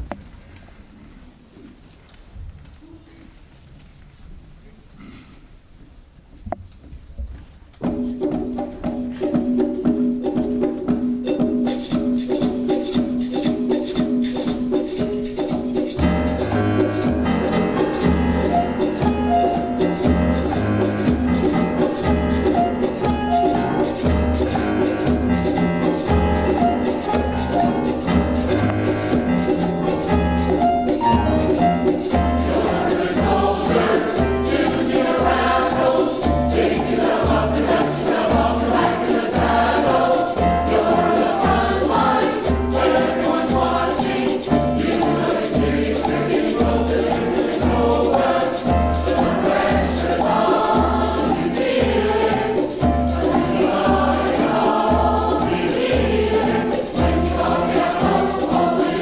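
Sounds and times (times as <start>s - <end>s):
shakers: 6.7s - 59.0s
choir singing: 16.2s - 59.0s.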